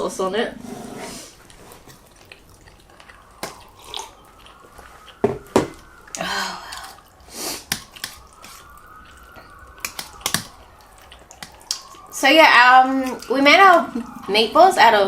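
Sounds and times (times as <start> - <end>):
slurping and chewing: 0.6 - 12.1.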